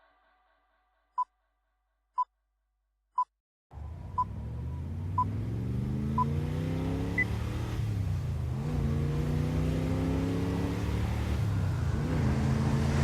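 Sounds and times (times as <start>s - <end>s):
engine accelerating: 3.7s - 13.0s.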